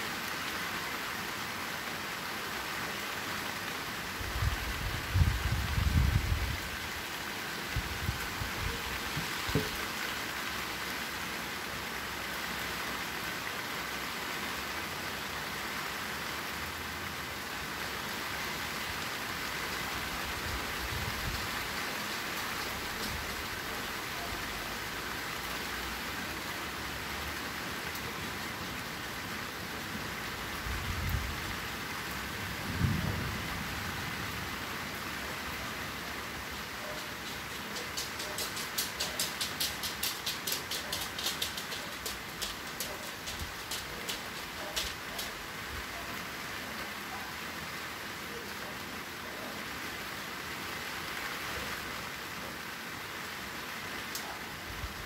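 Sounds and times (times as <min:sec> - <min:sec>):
rain on foliage: 0:00.0 - 0:55.0.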